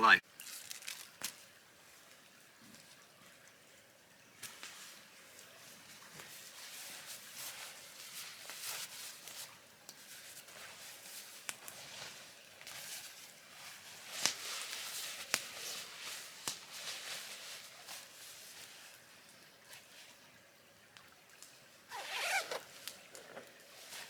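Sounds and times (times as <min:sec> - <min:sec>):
fabric rustling: 0:05.6 - 0:18.9, 0:21.9 - 0:24.0.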